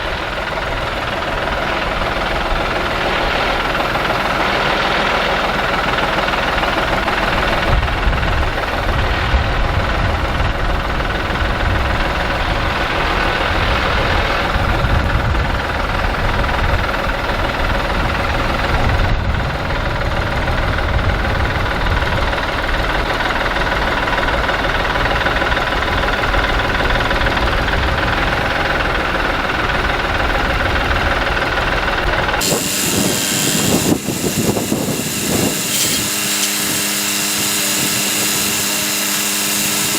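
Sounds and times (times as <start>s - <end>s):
vehicle engine rumbling: 0.0s - 39.9s
bright hiss: 32.4s - 39.9s.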